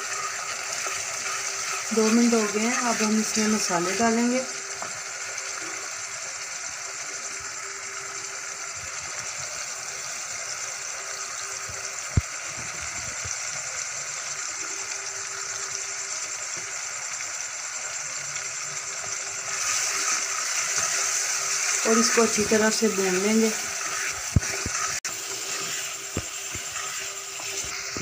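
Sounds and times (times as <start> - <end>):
food sizzling in a pan: 0.0 - 28.0.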